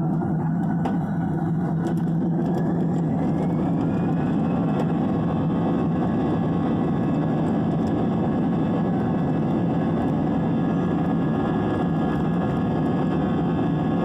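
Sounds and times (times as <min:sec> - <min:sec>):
jet engines spooling up: 0:00.0 - 0:14.0.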